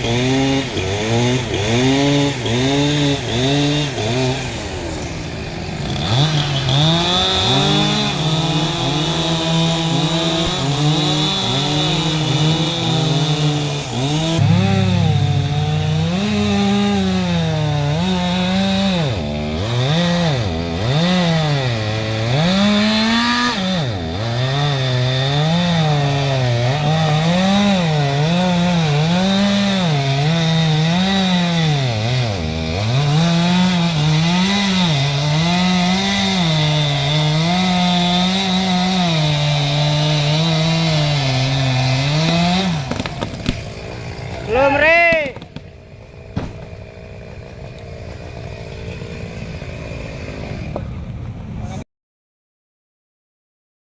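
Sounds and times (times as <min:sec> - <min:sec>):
chainsaw cutting wood: 0:00.0 - 0:51.4.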